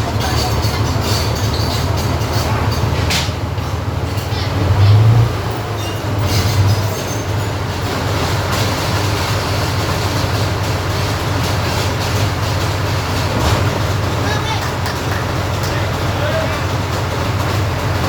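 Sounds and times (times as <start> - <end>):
heavy engine low rumble: 0.0 - 18.0
rattling clattering noise: 0.0 - 18.0.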